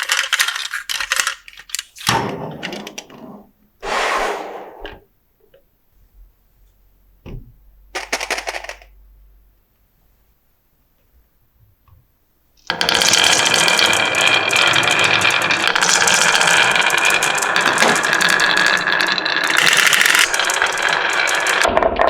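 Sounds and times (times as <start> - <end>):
marbles clattering down a run: 12.7 - 22.0.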